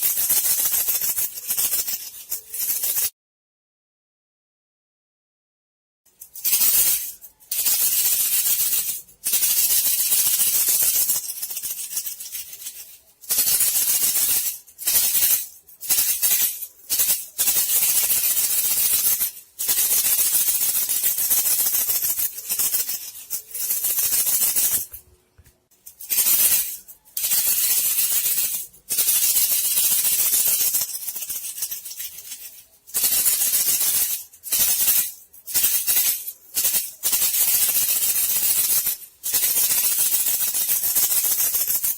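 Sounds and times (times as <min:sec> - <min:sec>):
bamboo strips rattling: 0:25.9 - 0:41.9.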